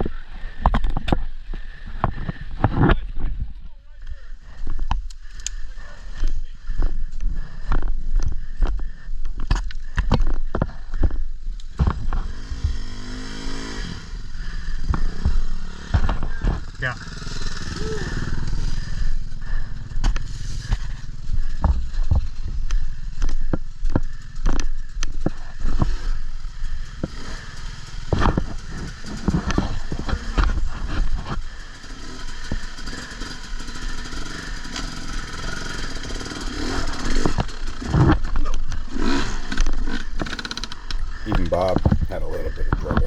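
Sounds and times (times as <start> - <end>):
motorcycle engine running: 10.7 - 37.9.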